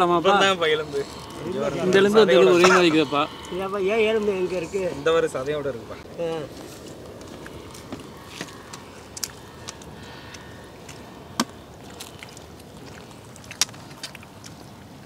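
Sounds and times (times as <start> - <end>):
chewing and biting bones: 7.2 - 14.6.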